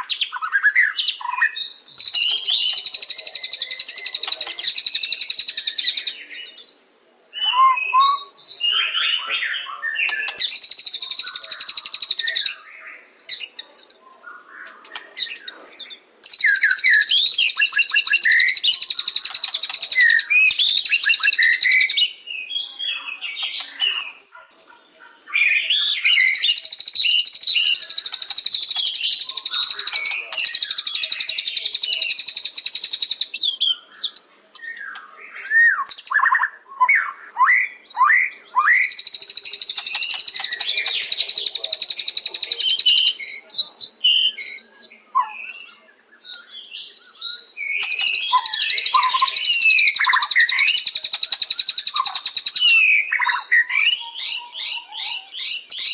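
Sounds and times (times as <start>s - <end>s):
bird trilled chatter: 10.1s - 12.6s, 14.8s - 21.9s, 26.1s - 33.3s, 38.8s - 43.2s, 47.8s - 52.7s.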